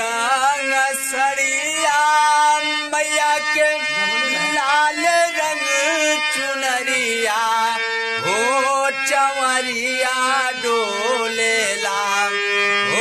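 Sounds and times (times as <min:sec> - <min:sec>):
man singing folk song: 0:00.0 - 0:13.0
steady drone: 0:03.9 - 0:06.0.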